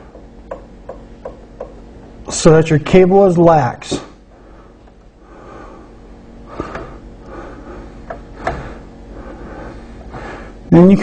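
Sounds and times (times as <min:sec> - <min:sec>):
soft breathing: 0:04.3 - 0:10.7.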